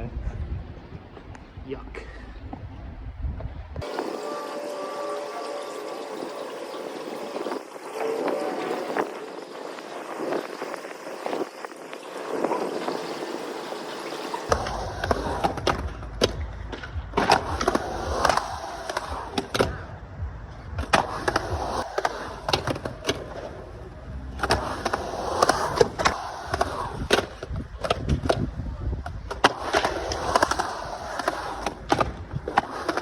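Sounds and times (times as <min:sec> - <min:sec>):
skateboard wheels rumbling: 0:03.4 - 0:33.0
skateboard clacking: 0:06.2 - 0:20.0, 0:20.8 - 0:33.0.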